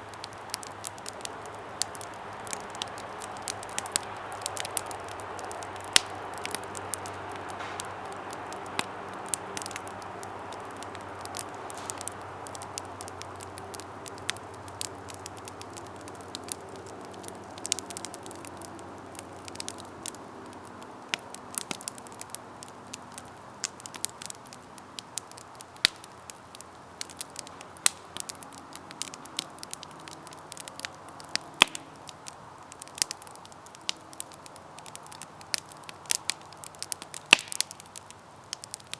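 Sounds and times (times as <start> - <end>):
crackles of burning wood: 0.0 - 38.9
hiss of flames: 0.0 - 38.9.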